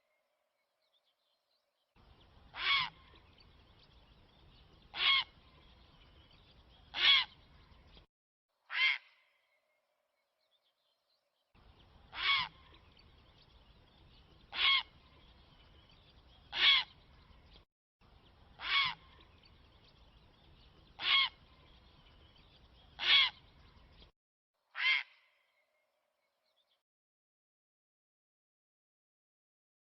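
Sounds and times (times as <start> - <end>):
recorded bird call: 2.0 - 8.1, 8.7 - 9.8, 11.6 - 24.1, 24.7 - 26.8.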